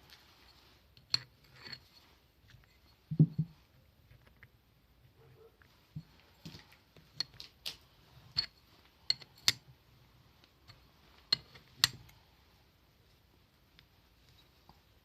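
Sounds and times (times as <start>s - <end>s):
small metal parts clinking: 1.0s - 3.0s, 6.4s - 9.6s.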